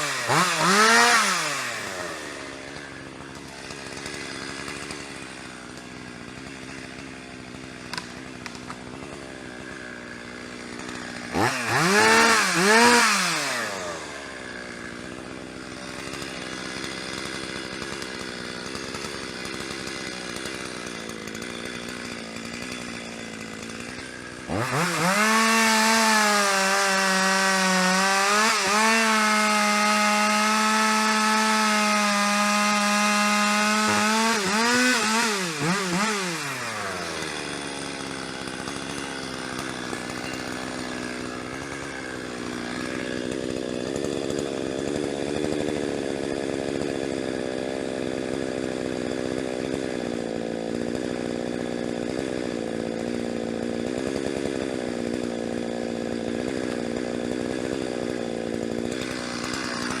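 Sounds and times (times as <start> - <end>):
chainsaw running: 0.0 - 60.0.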